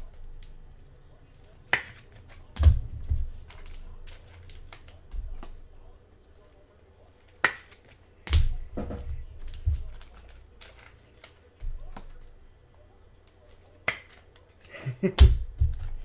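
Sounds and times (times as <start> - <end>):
cards and packaging clicking: 1.3 - 5.6, 9.3 - 12.3, 13.2 - 14.7.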